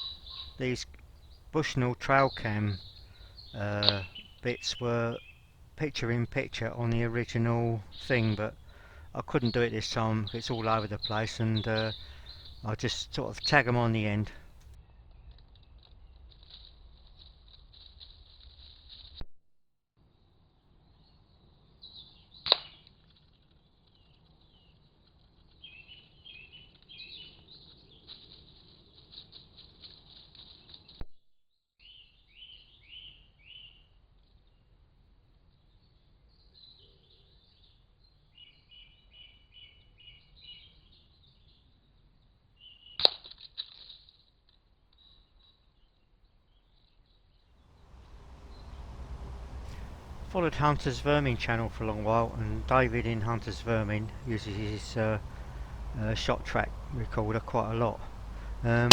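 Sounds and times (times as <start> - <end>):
small birds chirping: 0.0 - 14.7, 47.8 - 58.9.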